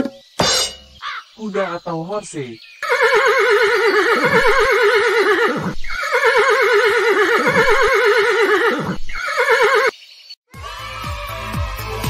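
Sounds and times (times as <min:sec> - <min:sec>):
horse whinnying: 0:02.8 - 0:09.9.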